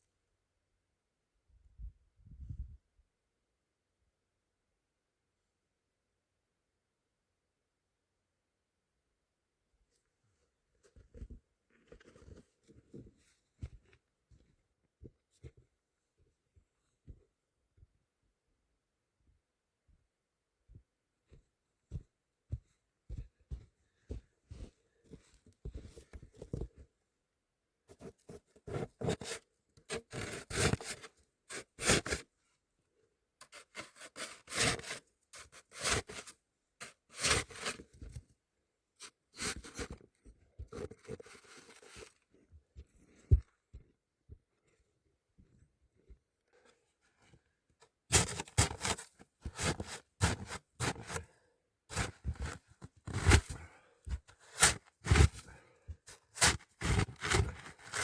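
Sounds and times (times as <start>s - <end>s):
tool scraping icy snow: 48.1s - 51.2s, 51.9s - 53.6s, 54.4s - 55.5s, 56.3s - 58.0s.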